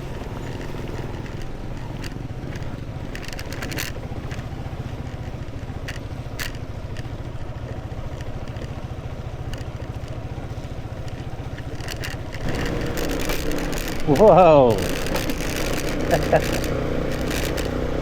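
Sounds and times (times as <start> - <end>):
motorcycle engine and road rumble: 0.0 - 18.0
sharp knocks and rattles: 0.0 - 18.0.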